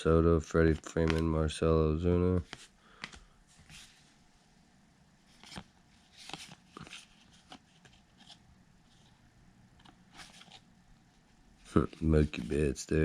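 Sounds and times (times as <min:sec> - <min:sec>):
trading cards flipped by hand: 0:00.7 - 0:01.3, 0:02.4 - 0:04.0, 0:05.3 - 0:09.2, 0:09.8 - 0:10.7, 0:11.7 - 0:12.7.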